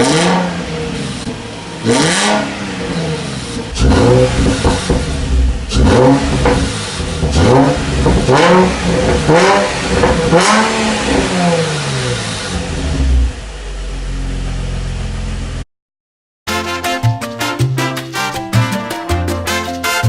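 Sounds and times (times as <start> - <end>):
car engine revving: 0.0 - 15.6
car engine idling: 0.4 - 15.6.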